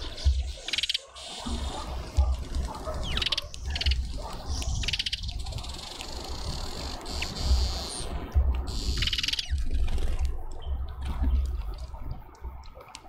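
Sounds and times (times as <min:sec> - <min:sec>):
small birds chattering: 0:00.0 - 0:08.1.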